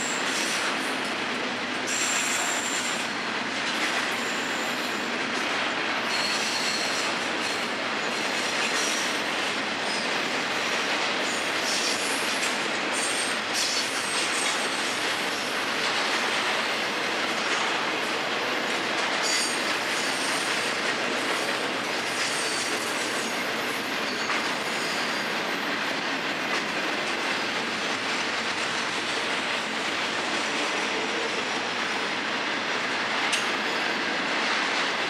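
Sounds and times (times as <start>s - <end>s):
freight train wheels on rail: 0.0s - 35.0s
faint high wheel squeals: 6.0s - 7.1s.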